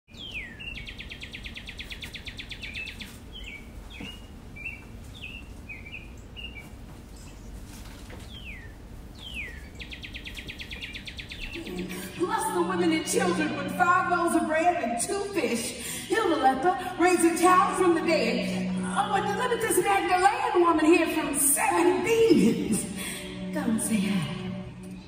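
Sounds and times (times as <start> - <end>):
faint background noise: 0.1 - 25.0
bird whistles and trills: 0.2 - 6.7.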